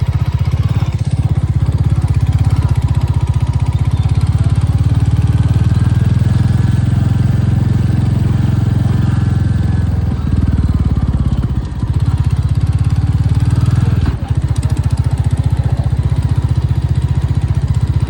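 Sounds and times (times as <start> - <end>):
motor engine running: 0.0 - 18.0.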